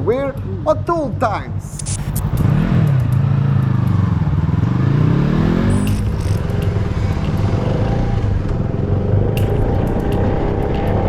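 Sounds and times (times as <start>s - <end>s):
motorcycle engine accelerating: 2.3s - 11.0s.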